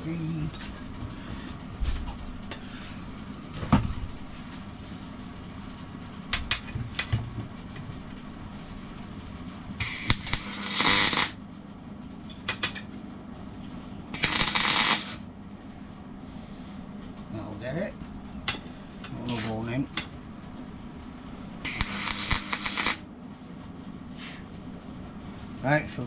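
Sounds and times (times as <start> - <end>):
welding crackle: 9.8 - 11.4, 14.2 - 15.2, 21.7 - 23.1.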